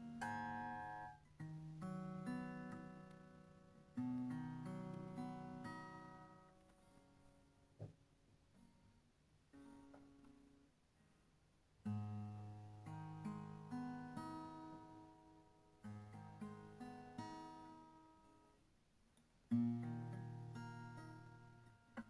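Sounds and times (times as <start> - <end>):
acoustic guitar plucked notes: 0.0 - 7.4, 11.8 - 18.5, 19.5 - 22.0.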